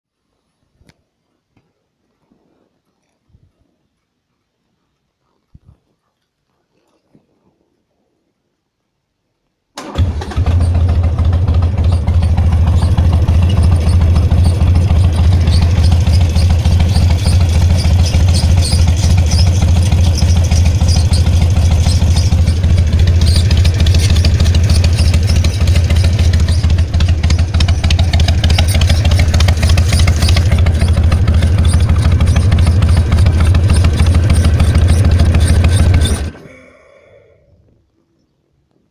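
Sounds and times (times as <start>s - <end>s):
motorcycle engine idling: 9.8s - 36.6s
odd engine noise: 9.8s - 37.8s.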